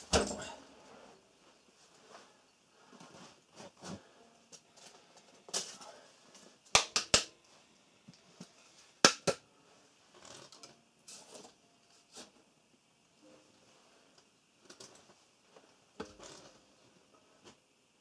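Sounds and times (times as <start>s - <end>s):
rustling and handling sounds: 0.2s - 6.8s.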